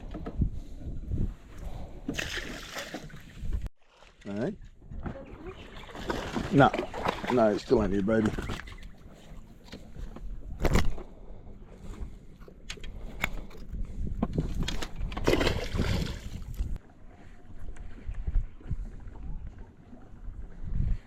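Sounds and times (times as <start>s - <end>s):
wind: 0.0s - 21.0s
water noise: 1.5s - 21.0s
fishing gear knocks and clicks: 12.4s - 15.6s.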